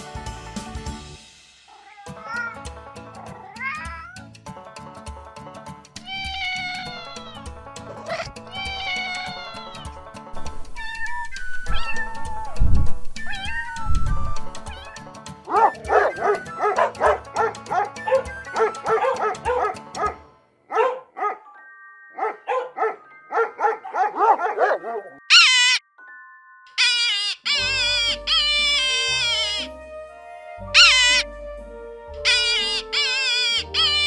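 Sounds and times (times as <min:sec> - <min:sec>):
background music: 0:00.0 - 0:34.0
dogs barking and yelping: 0:01.7 - 0:04.3, 0:06.0 - 0:21.4, 0:22.2 - 0:25.8, 0:26.8 - 0:29.7, 0:30.7 - 0:31.3, 0:32.2 - 0:34.0.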